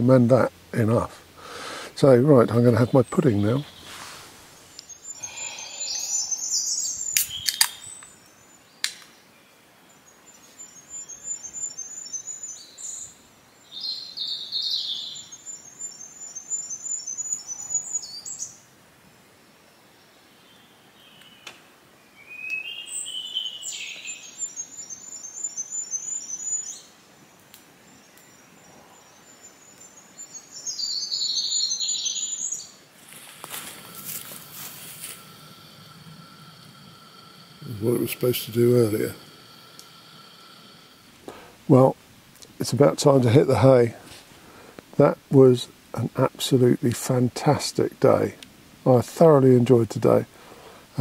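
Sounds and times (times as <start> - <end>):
songbird singing: 0.0 - 51.0
hiss: 3.8 - 7.6, 33.2 - 41.8.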